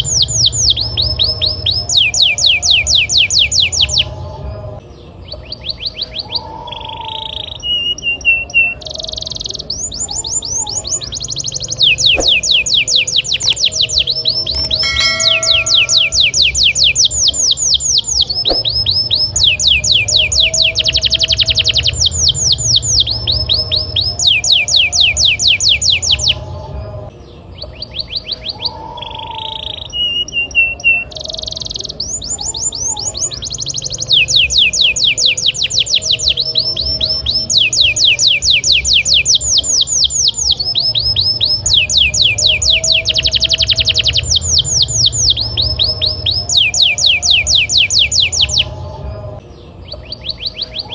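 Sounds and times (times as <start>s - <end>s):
canary singing trills: 5.0s - 26.5s, 27.2s - 50.9s
low hum: 14.6s - 16.7s.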